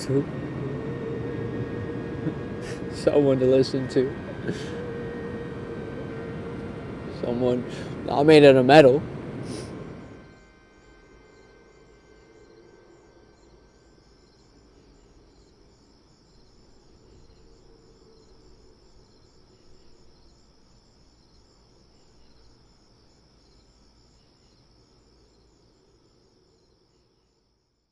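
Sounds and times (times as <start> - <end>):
high insect trill: 0.0 - 27.4
crickets chirping: 0.0 - 27.9.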